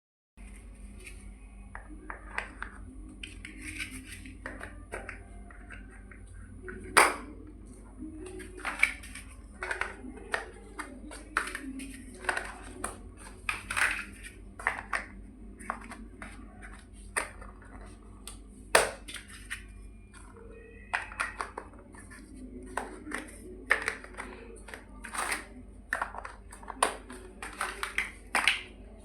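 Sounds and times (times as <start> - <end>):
plastic bricks clicking and clattering: 8.3 - 18.0, 20.9 - 28.8.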